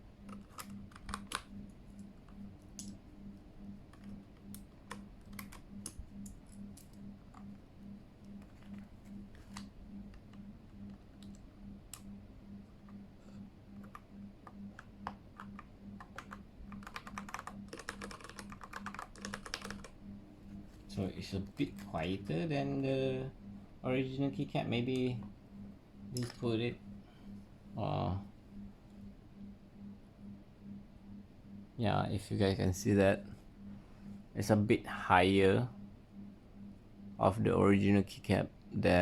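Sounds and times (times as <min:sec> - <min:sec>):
faint pulsing hum: 0:00.0 - 0:39.0
typing on keyboard: 0:00.2 - 0:03.0, 0:03.9 - 0:07.6, 0:13.8 - 0:20.0
keyboard key clicks and taps: 0:00.3 - 0:01.5, 0:13.8 - 0:19.9.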